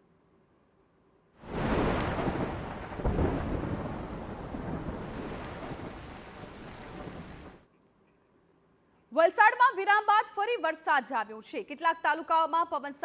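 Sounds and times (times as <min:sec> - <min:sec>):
heavy rain pouring: 0:01.4 - 0:07.6
rolling thunder: 0:01.4 - 0:07.6.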